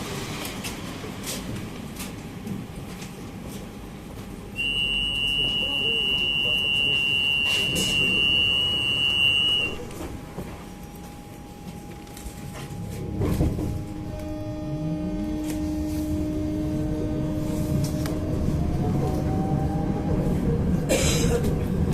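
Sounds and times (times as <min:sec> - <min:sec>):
tram interior rumble: 0:00.0 - 0:21.9
high-pitched tram warning buzzer: 0:04.6 - 0:09.9.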